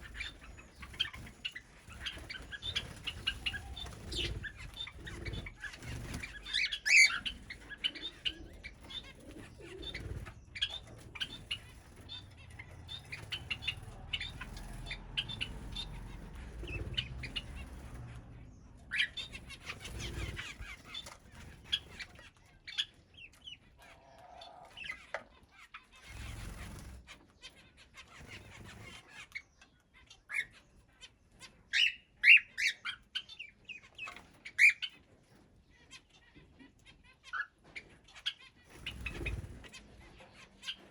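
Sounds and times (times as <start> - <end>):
wings fluttering: 0.0 - 25.1, 26.0 - 27.3, 28.0 - 29.4, 37.7 - 40.9
birds chirping and calling: 0.0 - 40.9.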